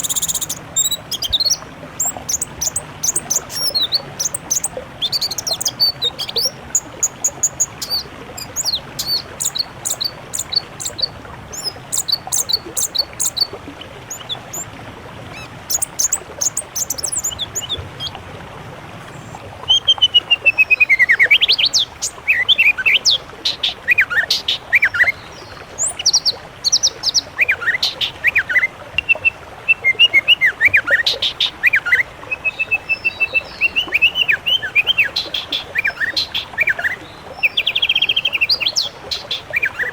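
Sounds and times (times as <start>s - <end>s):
whistled bird phrases: 0.0s - 13.5s
songbirds chirping and trilling: 0.0s - 18.2s, 32.4s - 39.9s.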